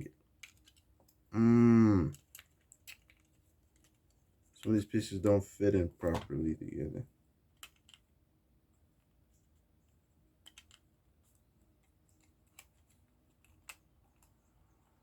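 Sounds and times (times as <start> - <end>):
plastic parts clicking together: 0.3 - 1.2, 2.1 - 4.8, 7.5 - 8.1, 10.4 - 10.9.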